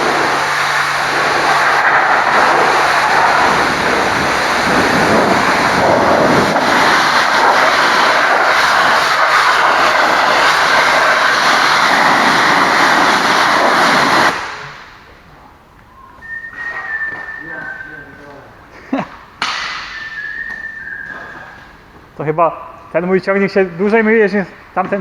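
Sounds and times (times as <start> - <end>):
high-pressure water jet hissing: 0.0 - 15.0.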